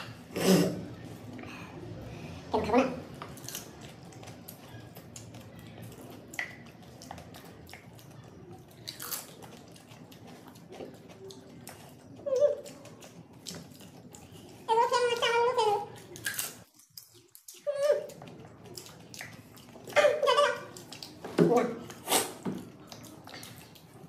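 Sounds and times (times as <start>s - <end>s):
crunching crisp shells: 8.8s - 10.4s, 16.1s - 17.5s
wet mouth noises: 8.8s - 24.0s.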